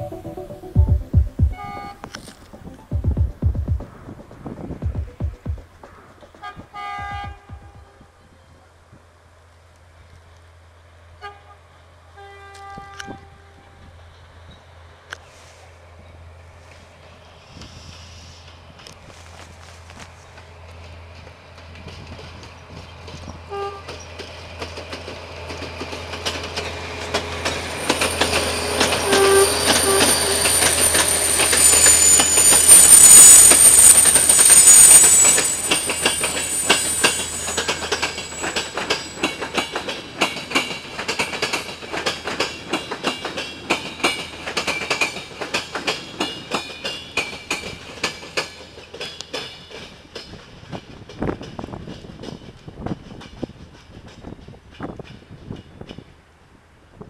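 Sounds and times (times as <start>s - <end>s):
diesel locomotive passing: 0.0s - 55.6s
train horn blast: 1.5s - 2.4s, 12.2s - 13.8s, 27.8s - 38.5s
wheels clickety-clacking over rail joints: 1.5s - 9.1s, 16.7s - 57.0s.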